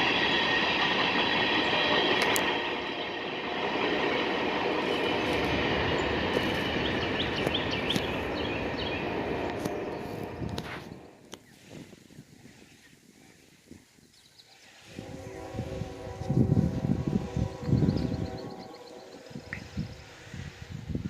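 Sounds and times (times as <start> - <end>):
high wheel squeal: 0.0 - 11.2
railroad cars rolling on track: 0.0 - 21.0.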